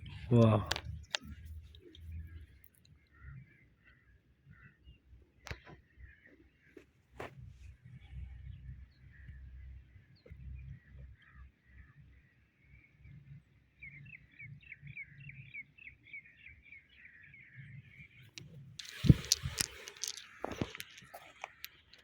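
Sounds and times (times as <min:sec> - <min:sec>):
small birds chirping: 0:07.7 - 0:22.0.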